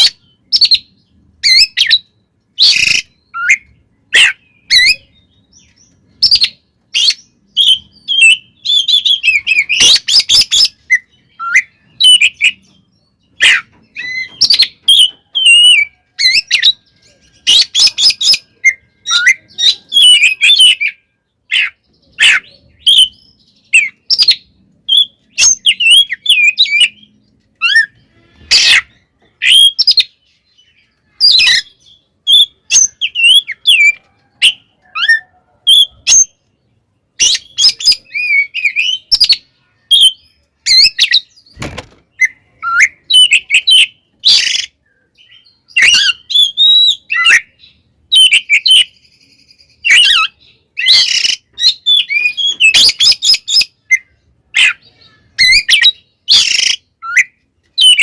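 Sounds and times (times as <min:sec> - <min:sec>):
bird singing whistles and chatter: 0:00.0 - 0:36.4, 0:37.2 - 0:58.0
harsh rasping bird notes: 0:25.0 - 0:30.0.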